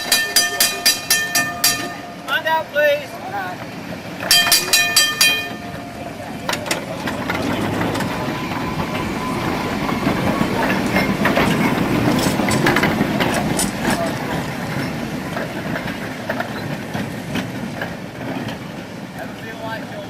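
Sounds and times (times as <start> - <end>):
tram wheel rumble: 0.0 - 20.0
wheels clicking over rail joints: 0.0 - 20.0.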